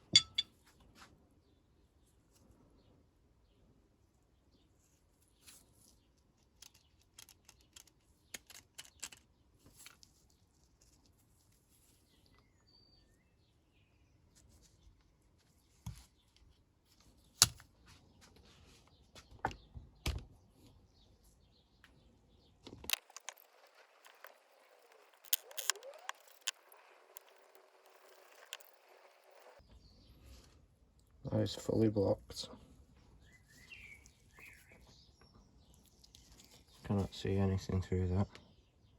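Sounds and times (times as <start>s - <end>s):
small metallic clicks and taps: 22.7s - 29.6s.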